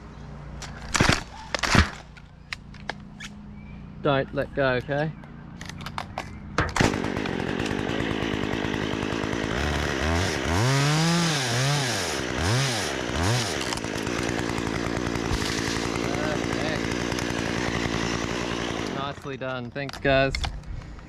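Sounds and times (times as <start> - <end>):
chainsaw revving: 6.8 - 19.4.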